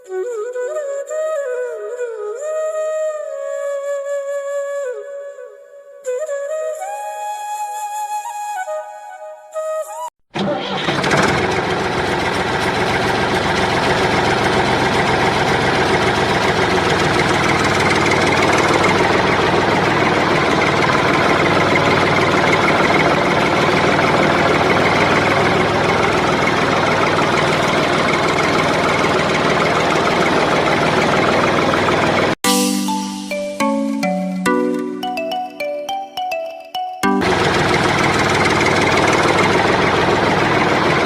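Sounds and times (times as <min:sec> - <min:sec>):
tractor engine idling: 0:10.4 - 0:33.0, 0:37.1 - 0:41.0.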